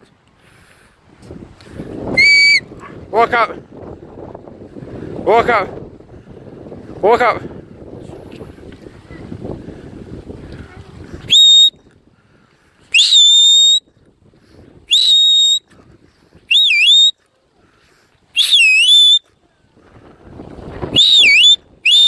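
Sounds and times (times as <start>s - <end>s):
sharp whistle blasts: 2.2s - 2.7s, 11.3s - 11.8s, 12.9s - 13.8s, 14.9s - 15.7s, 16.5s - 17.2s, 18.4s - 19.3s, 20.9s - 22.0s.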